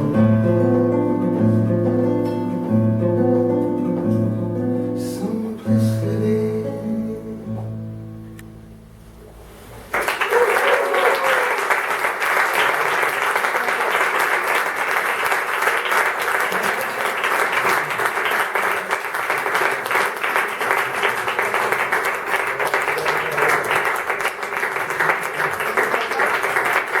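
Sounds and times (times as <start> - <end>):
audience applause: 9.9 - 27.0.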